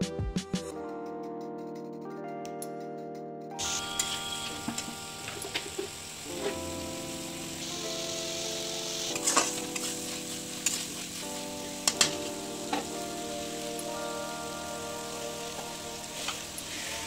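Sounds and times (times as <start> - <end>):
masala sizzling in a pan: 3.6 - 17.0.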